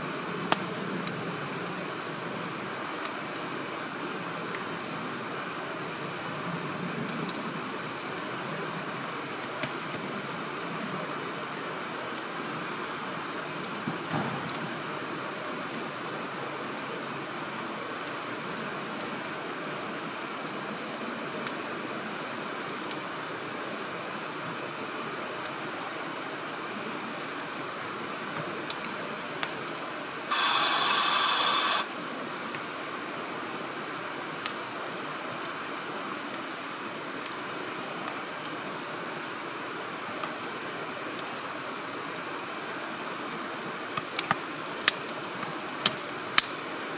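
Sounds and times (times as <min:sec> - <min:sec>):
wood fire crackling: 0:00.5 - 0:10.6, 0:21.2 - 0:23.4, 0:26.9 - 0:34.8, 0:43.8 - 0:46.8.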